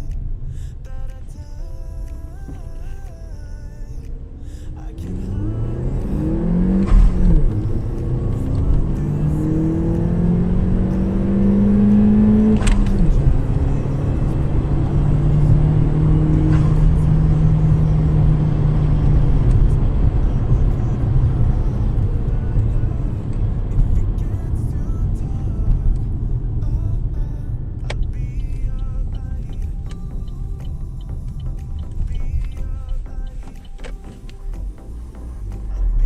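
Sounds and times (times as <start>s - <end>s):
car engine accelerating: 4.1s - 36.0s
gear change click: 5.0s - 15.7s, 27.7s - 34.8s.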